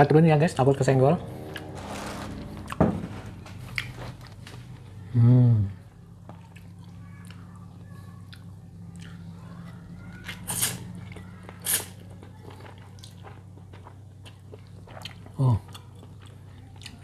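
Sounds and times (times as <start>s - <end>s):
steady low hum: 0.0s - 17.0s
person chewing noodles: 8.2s - 9.4s, 10.2s - 17.0s.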